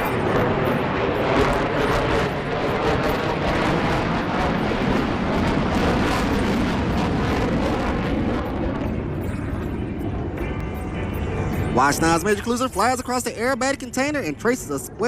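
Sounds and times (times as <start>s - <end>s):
rough crackling jet noise: 0.0s - 15.0s.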